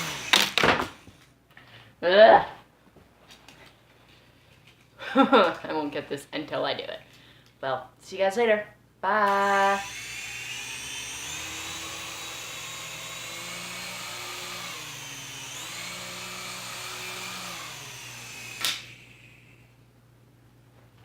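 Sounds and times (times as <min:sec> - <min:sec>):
toy helicopter motor whining: 0:00.0 - 0:01.0, 0:09.3 - 0:19.7.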